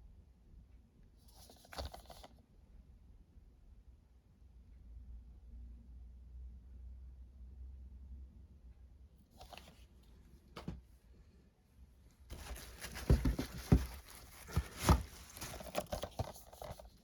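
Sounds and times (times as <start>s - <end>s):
packaging rustling: 12.3s - 17.0s.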